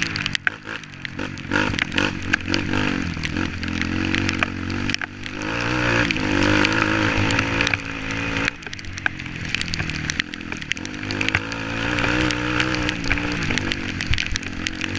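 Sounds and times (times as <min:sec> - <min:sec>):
dirt bike engine revving: 0:00.0 - 0:14.9.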